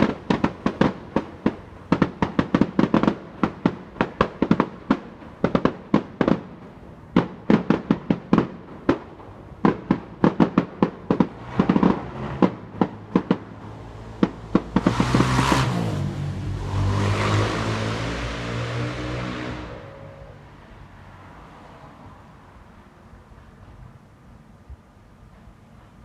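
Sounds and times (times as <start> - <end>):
fireworks bangs: 0.0 - 20.6
low drone: 13.6 - 21.0.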